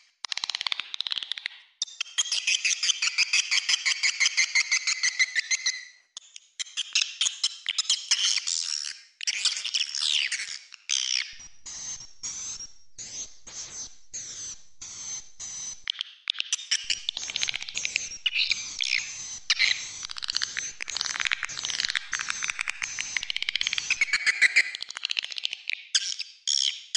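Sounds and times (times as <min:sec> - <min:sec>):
swiftlet chirps and twitters: 0:09.4 - 0:24.8
short chirping pulses: 0:11.2 - 0:24.8.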